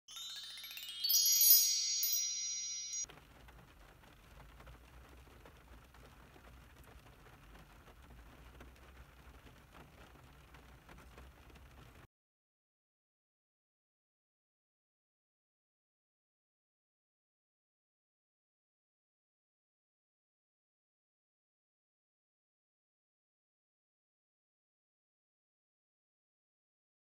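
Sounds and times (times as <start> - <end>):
rising chime tones: 0.1 - 3.1.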